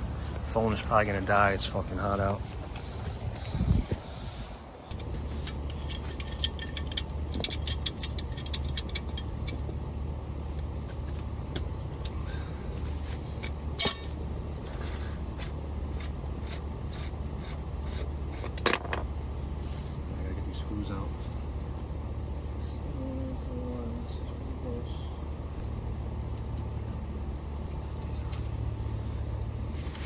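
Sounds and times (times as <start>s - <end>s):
steady low hum: 0.0s - 30.0s
clicks and clinks of pipe fitting: 4.9s - 9.6s, 13.4s - 15.5s.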